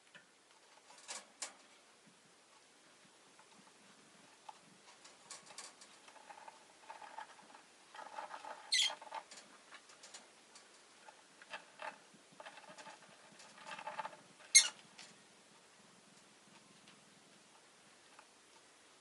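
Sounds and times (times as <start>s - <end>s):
bird chirp: 8.7s - 9.0s
lovebird chattering: 8.7s - 9.0s, 14.5s - 14.8s.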